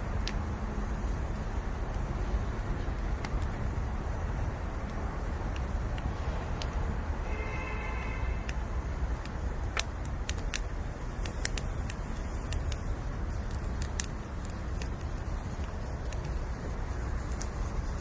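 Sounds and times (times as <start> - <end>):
campfire crackling and popping: 0.0 - 18.0
low fire rumble: 0.0 - 18.0
faint whistle: 7.2 - 8.4.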